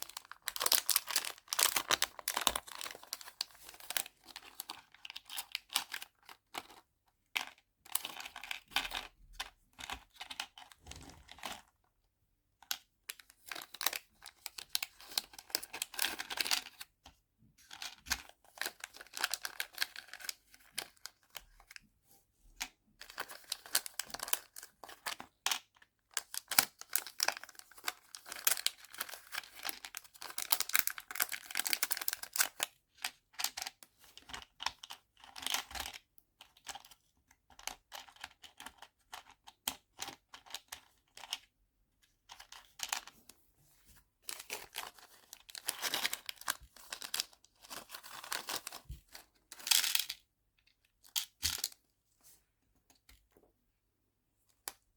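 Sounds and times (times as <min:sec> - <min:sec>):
plastic packets crinkling and tearing: 0:00.0 - 0:05.4, 0:26.3 - 0:32.6.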